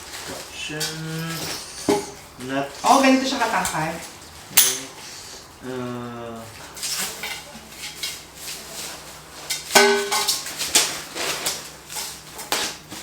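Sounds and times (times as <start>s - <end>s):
furniture parts clinking: 0.0s - 5.0s.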